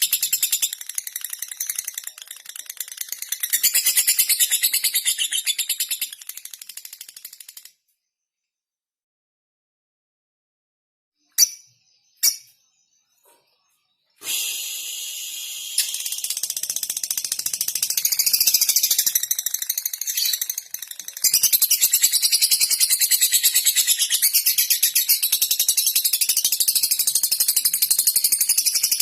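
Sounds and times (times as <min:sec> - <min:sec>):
bird high-pitched chatter: 0:00.0 - 0:07.7, 0:15.5 - 0:29.0
bird chirps: 0:00.0 - 0:08.6, 0:11.2 - 0:29.0.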